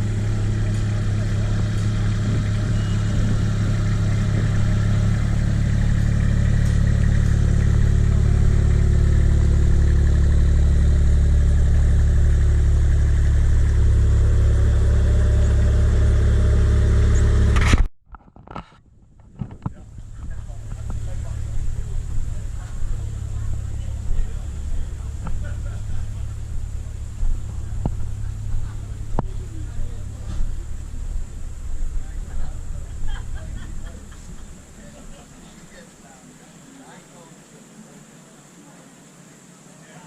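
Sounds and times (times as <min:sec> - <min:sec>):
large truck engine running: 0:00.0 - 0:17.9, 0:19.6 - 0:38.1.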